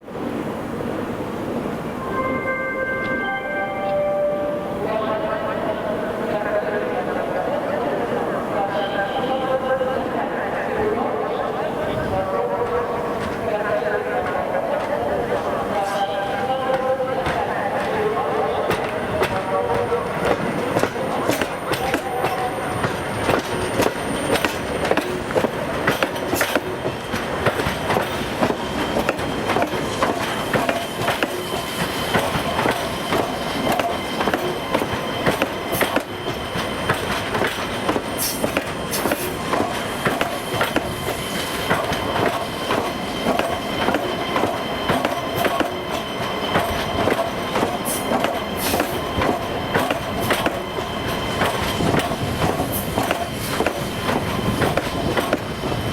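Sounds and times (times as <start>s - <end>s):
train wheels clattering: 16.7s - 55.9s
train wheel squeal: 20.1s - 25.3s, 28.1s - 55.9s.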